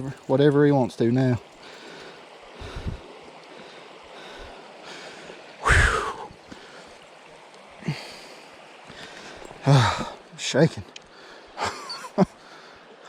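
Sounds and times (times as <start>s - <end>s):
mountain stream rushing: 0.0s - 13.0s
man gasping breath: 1.6s - 3.0s, 8.9s - 10.2s.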